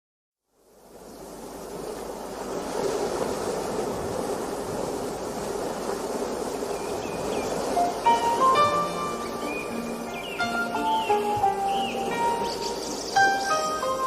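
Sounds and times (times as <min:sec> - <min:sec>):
sea waves washing on shore: 0:00.6 - 0:14.0
music with held notes: 0:07.8 - 0:14.0.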